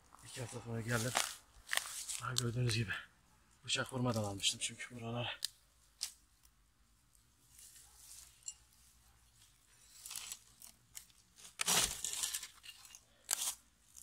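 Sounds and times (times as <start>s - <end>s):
crunching and rustling: 0.0s - 2.9s, 7.1s - 14.0s.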